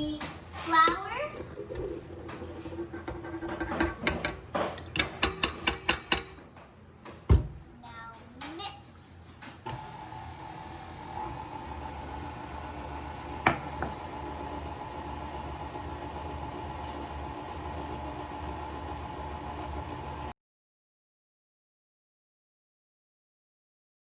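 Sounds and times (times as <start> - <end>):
electric mixer motor whining: 9.7 - 20.3.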